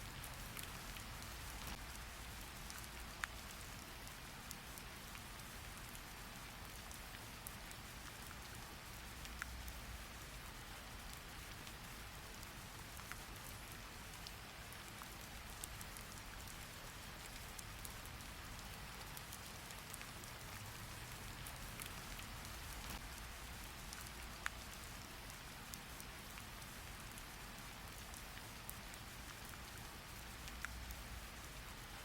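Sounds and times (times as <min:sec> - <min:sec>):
steady rain: 0:00.0 - 0:32.0.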